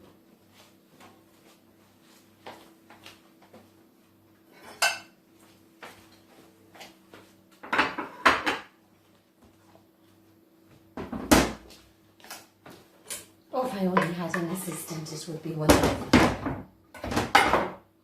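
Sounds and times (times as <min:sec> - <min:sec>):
dishes and cutlery clattering: 0:04.5 - 0:05.1, 0:07.6 - 0:08.7.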